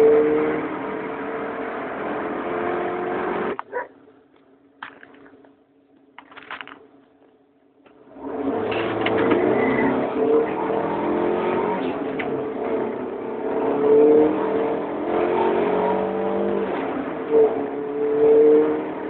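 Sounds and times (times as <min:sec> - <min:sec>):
car engine accelerating: 0:00.0 - 0:03.6, 0:07.8 - 0:19.0.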